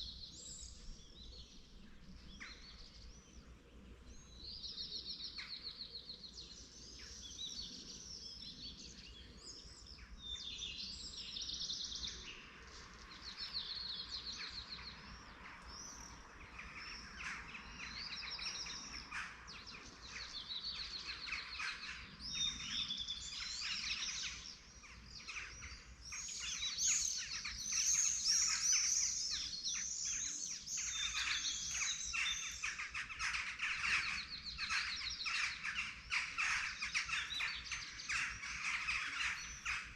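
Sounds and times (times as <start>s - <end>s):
small birds singing: 0.0s - 39.9s.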